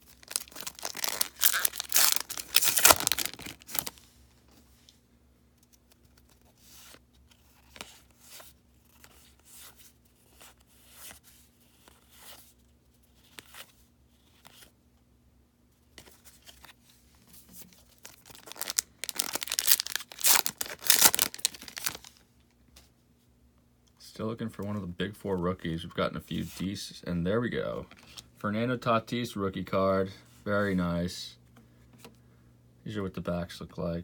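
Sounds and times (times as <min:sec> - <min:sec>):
wrapper tearing open: 0:00.0 - 0:04.0, 0:17.9 - 0:22.2.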